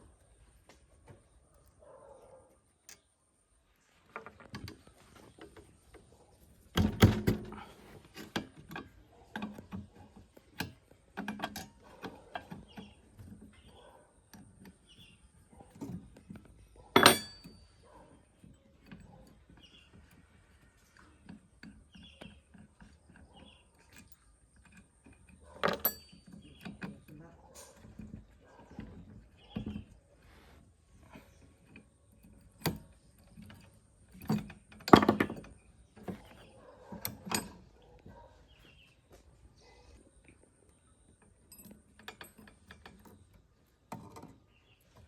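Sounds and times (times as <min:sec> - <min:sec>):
metal tools clanking: 0:06.7 - 0:30.2, 0:31.0 - 0:38.8, 0:41.1 - 0:45.0.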